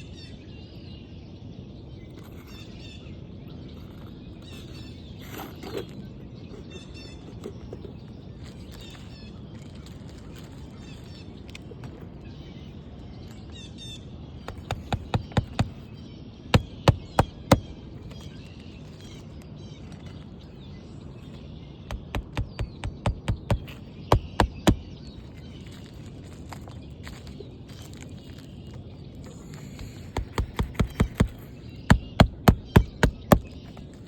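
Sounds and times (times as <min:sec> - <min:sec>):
birds chirping faintly: 0:00.0 - 0:34.0
hammer driving nails into shingle: 0:14.5 - 0:15.9, 0:16.6 - 0:18.2, 0:21.9 - 0:24.9, 0:29.6 - 0:33.8.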